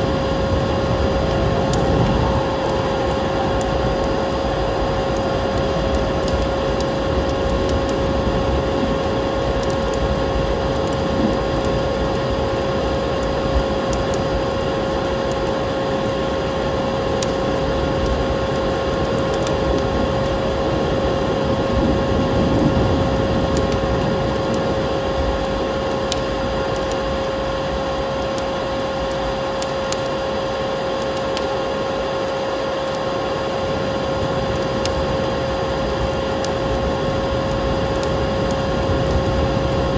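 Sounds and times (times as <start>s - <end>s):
steady rushing noise: 0.0s - 14.4s
constant hum: 0.0s - 39.9s
wood fire crackling and popping: 0.0s - 39.9s.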